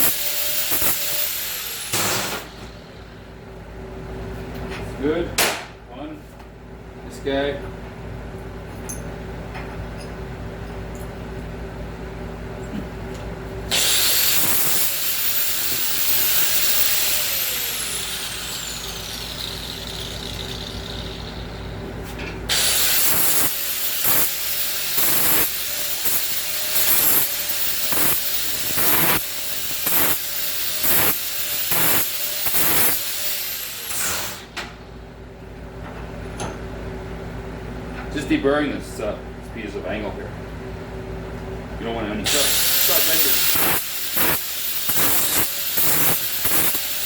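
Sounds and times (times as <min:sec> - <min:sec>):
angle grinder grinding steel: 0:00.0 - 0:02.6, 0:13.7 - 0:21.5, 0:22.5 - 0:34.5, 0:42.3 - 0:47.0.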